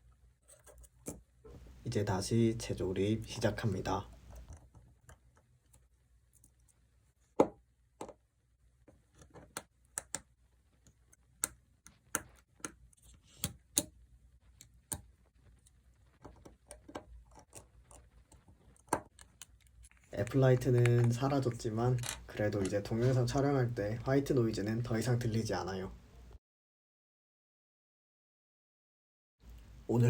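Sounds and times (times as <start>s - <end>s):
small clicks and taps of tools: 8.8s - 14.0s.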